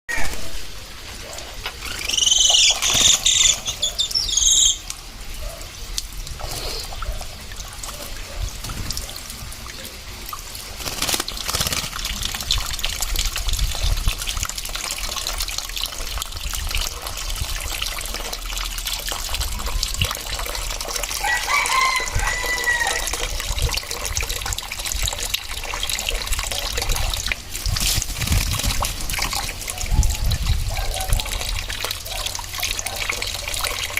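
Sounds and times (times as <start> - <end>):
running water splashing: 0.1 - 33.9
bird shrill whistling calls: 1.8 - 4.8
bird warbling call: 1.8 - 4.9.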